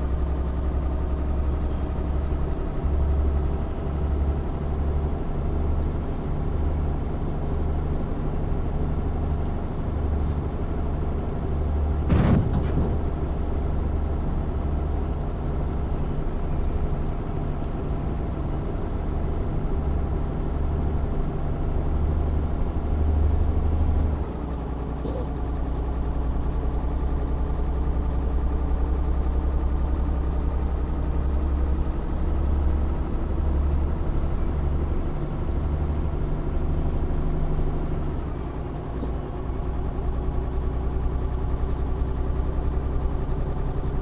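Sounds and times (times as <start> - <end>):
truck engine running: 12.0 - 13.6.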